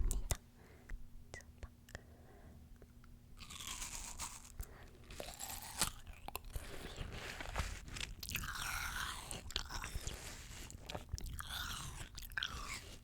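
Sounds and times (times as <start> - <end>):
crunchy fruit chewing: 3.4 - 13.0.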